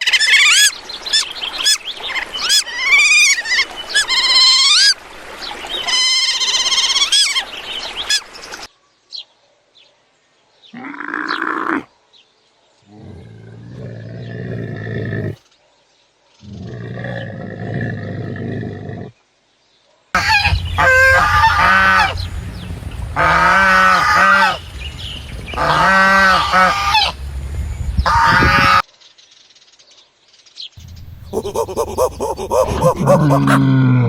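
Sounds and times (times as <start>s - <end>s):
geese honking: 20.2s - 27.4s, 28.0s - 28.8s, 30.8s - 33.6s
low rough animal calls: 30.8s - 34.0s.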